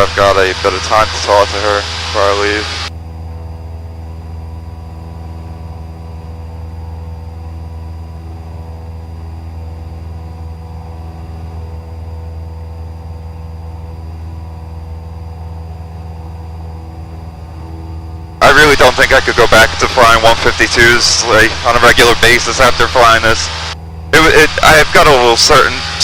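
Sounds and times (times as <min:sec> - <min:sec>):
faint high whine: 0:00.0 - 0:26.0
light aircraft engine droning: 0:00.0 - 0:26.0.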